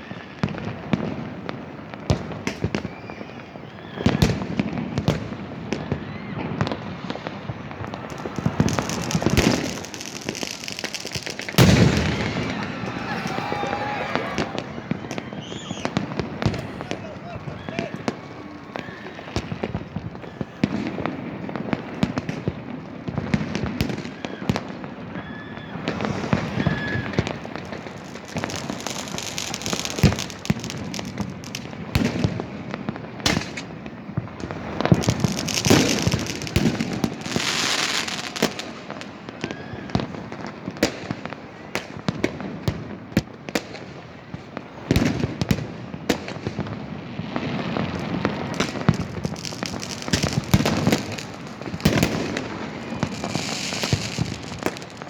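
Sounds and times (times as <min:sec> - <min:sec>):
fireworks and firecrackers banging: 0:00.0 - 0:55.0.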